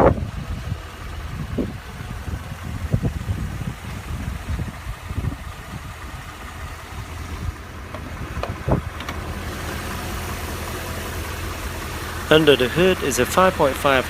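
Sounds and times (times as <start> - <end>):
car engine idling: 0.0 - 14.0
irregular knocks and thumps: 7.9 - 9.2.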